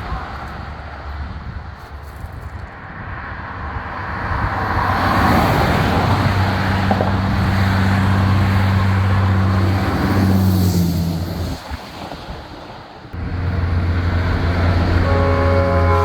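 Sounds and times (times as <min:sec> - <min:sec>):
road noise: 0:00.0 - 0:16.0
vehicle passing by: 0:03.7 - 0:11.6, 0:13.2 - 0:16.0
low engine drone: 0:13.2 - 0:16.0.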